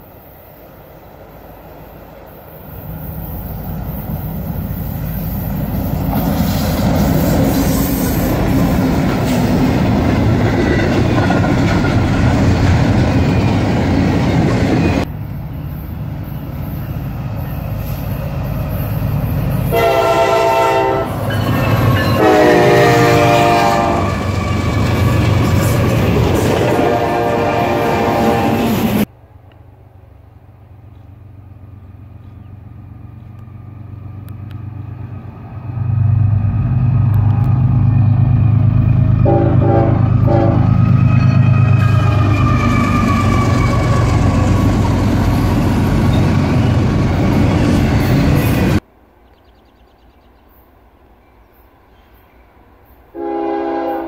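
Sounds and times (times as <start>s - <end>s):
freight train rumbling past: 0.0s - 54.0s
diesel locomotive horn: 19.6s - 25.7s, 26.3s - 29.1s, 39.0s - 44.9s, 53.1s - 54.0s.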